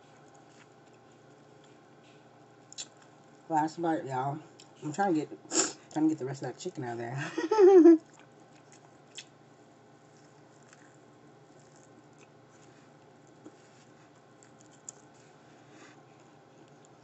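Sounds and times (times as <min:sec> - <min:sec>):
person chewing food: 0:00.1 - 0:03.5, 0:08.0 - 0:09.4, 0:10.0 - 0:17.0.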